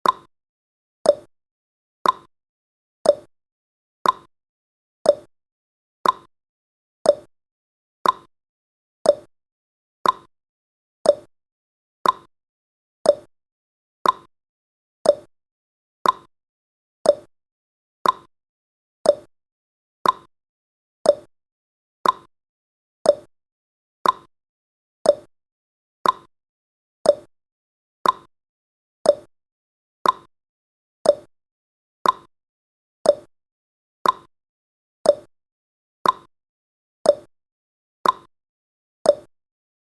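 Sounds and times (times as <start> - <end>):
clock-like ticking: 0.0 - 0.3, 1.1 - 1.3, 2.0 - 2.3, 3.1 - 3.3, 4.0 - 4.3, 5.1 - 5.3, 6.0 - 6.3, 7.1 - 7.3, 8.0 - 8.3, 9.1 - 9.3, 10.0 - 10.3, 11.1 - 11.3, 12.0 - 12.3, 13.1 - 13.3, 14.0 - 14.3, 15.0 - 15.3, 16.0 - 16.3, 17.1 - 17.3, 18.0 - 18.3, 19.1 - 19.3, 20.0 - 20.3, 21.1 - 21.3, 22.0 - 22.3, 23.1 - 23.3, 24.0 - 24.3, 25.1 - 25.3, 26.0 - 26.3, 27.0 - 27.3, 28.0 - 28.3, 29.1 - 29.3, 30.0 - 30.3, 31.0 - 31.3, 32.0 - 32.3, 33.1 - 33.3, 34.0 - 34.3, 35.1 - 35.3, 36.0 - 36.3, 37.1 - 37.3, 38.0 - 38.3, 39.1 - 39.3.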